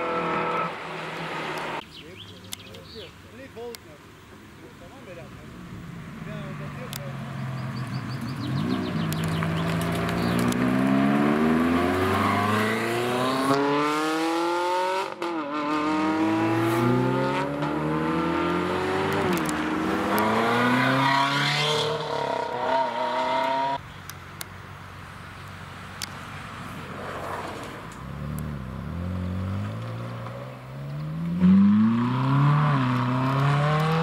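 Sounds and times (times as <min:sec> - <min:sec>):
sports car engine accelerating: 0:05.8 - 0:23.8, 0:28.0 - 0:34.0.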